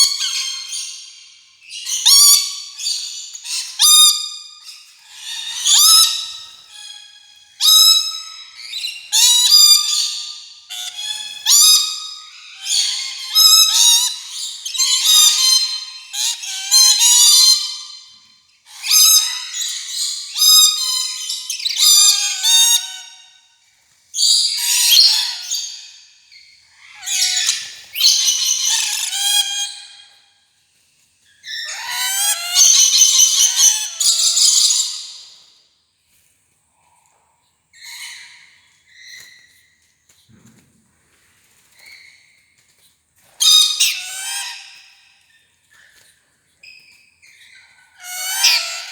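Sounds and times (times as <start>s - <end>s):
lorikeet chattering: 48.0s - 48.9s.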